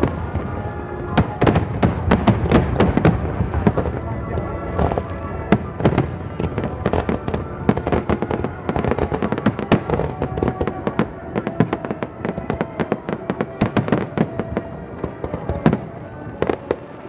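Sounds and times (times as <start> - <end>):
fireworks banging and crackling: 0.0 - 17.0.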